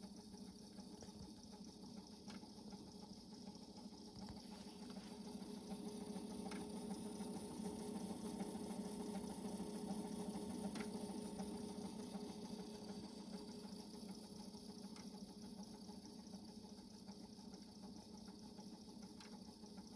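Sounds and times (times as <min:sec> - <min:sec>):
cassette motor whirring: 0:00.0 - 0:19.9.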